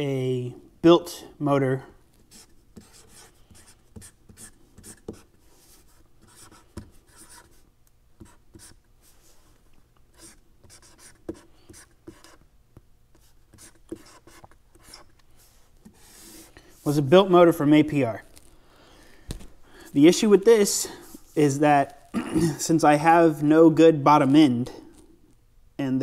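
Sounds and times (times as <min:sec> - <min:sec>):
pen scratching on paper: 0:02.3 - 0:07.6, 0:08.2 - 0:08.8, 0:10.1 - 0:12.4, 0:13.2 - 0:15.1.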